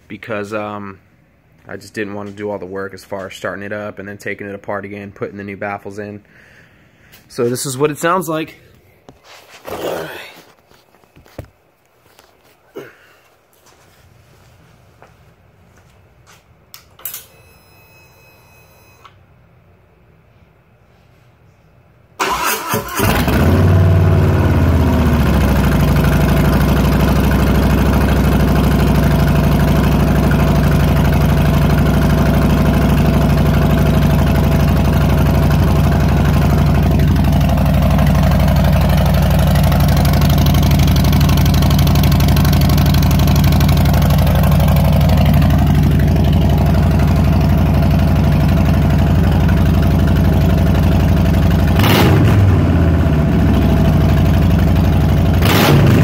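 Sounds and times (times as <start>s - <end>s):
motorcycle engine starting and idling: 22.2s - 56.0s.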